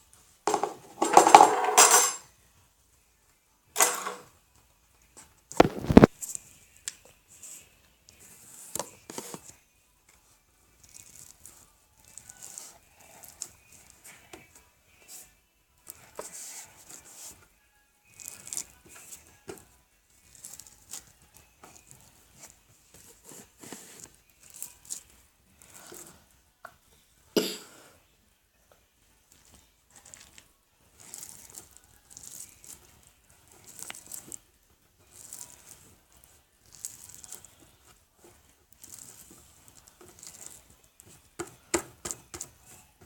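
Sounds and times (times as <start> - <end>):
slime squishing and crackling: 5.6 - 6.2, 10.8 - 13.6, 30.0 - 34.4, 35.1 - 37.5, 38.7 - 40.6.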